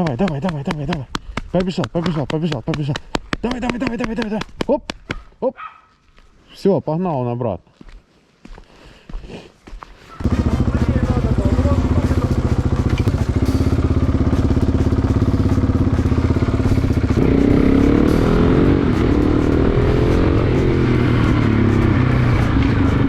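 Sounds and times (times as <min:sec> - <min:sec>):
motorcycle engine accelerating: 0:10.2 - 0:23.0.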